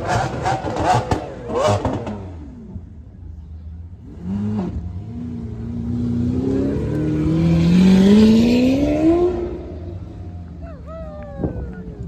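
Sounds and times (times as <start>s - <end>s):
car engine accelerating past: 4.1s - 10.5s.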